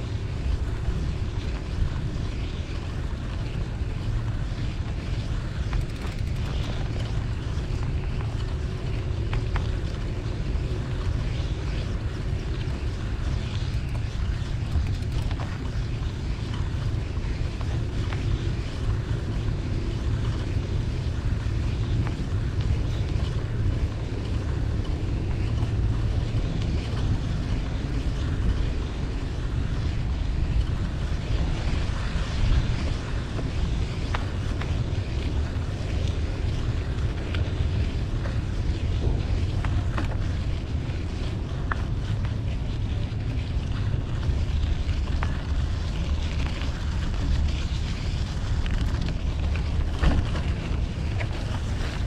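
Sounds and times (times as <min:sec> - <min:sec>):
street traffic noise: 0:00.0 - 0:52.0
wind buffeting microphone: 0:00.0 - 0:52.0.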